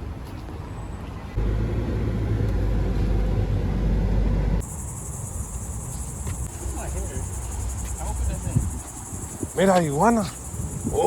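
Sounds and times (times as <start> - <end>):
low dull rumble: 1.4 - 4.6
crickets buzzing: 4.6 - 11.0.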